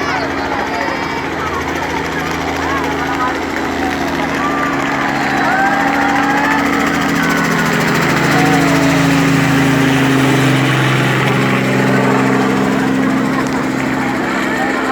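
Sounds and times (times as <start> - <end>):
helicopter flying overhead: 0.0 - 14.9.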